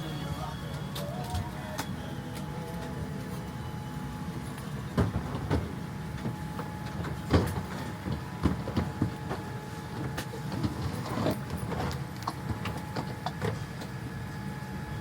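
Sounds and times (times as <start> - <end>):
aircraft cabin hum: 2.6 - 14.5
overhead bins and luggage thumping: 4.8 - 13.6.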